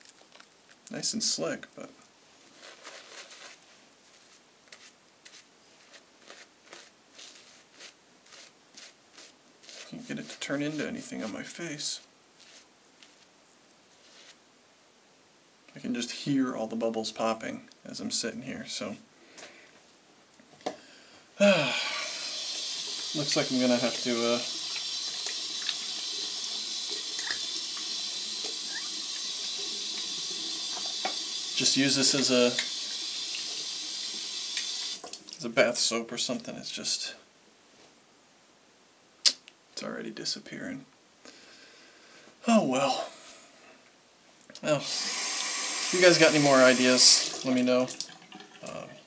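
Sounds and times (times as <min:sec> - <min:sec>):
shaving brush rasping on soap: 0:02.5 - 0:11.4, 0:12.4 - 0:13.2, 0:22.2 - 0:33.5
lather fizzing: 0:21.8 - 0:35.6, 0:44.7 - 0:48.9.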